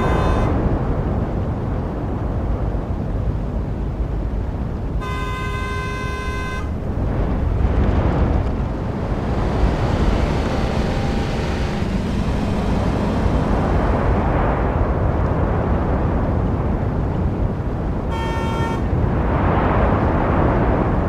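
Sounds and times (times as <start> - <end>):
car horn: 0.0 - 0.7, 5.0 - 6.9, 18.1 - 18.9
rumble of passing vehicles: 0.0 - 21.0.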